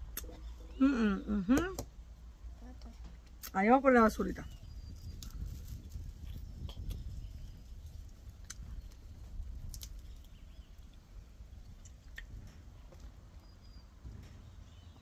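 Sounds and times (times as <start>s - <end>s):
chewing and gnawing fruit: 4.6s - 13.5s.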